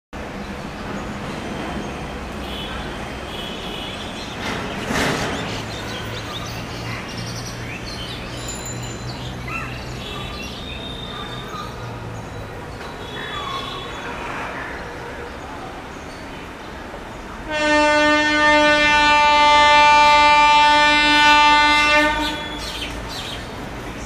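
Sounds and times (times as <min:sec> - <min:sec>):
birds chirping: 0:00.4 - 0:16.8.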